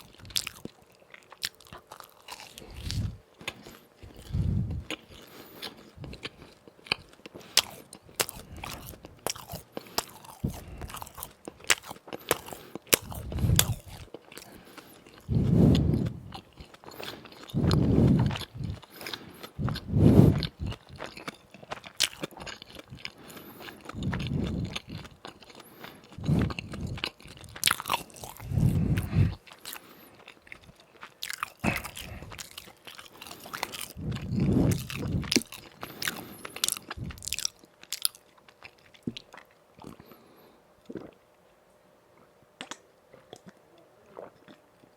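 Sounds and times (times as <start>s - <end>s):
crunchy bites of fried food: 0.0s - 15.3s, 18.2s - 40.1s
muffled chewing: 0.0s - 41.4s, 42.1s - 44.9s.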